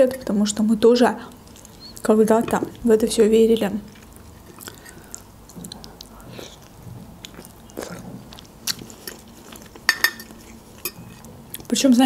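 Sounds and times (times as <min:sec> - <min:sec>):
person chewing and biting: 0:03.9 - 0:11.7.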